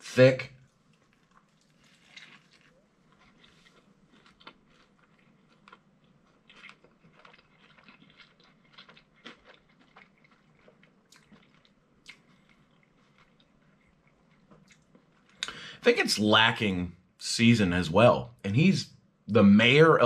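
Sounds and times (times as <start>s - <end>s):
person chewing with mouth smacks: 0.9s - 15.5s.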